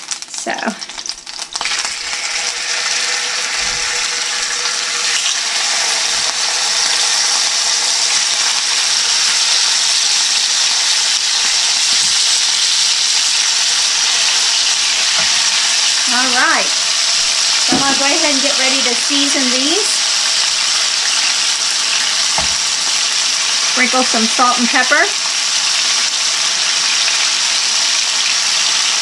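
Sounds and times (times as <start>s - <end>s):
chicken sizzling in a frying pan: 0.0s - 29.0s.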